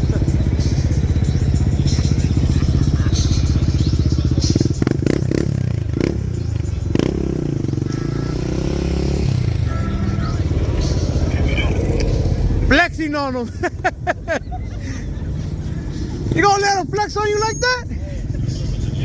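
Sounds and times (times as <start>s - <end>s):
loud vehicle engine revving: 0.0s - 16.6s.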